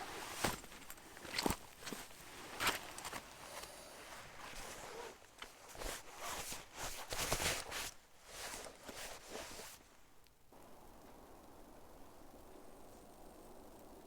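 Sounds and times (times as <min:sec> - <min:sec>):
footsteps on forest floor: 0:00.0 - 0:04.7.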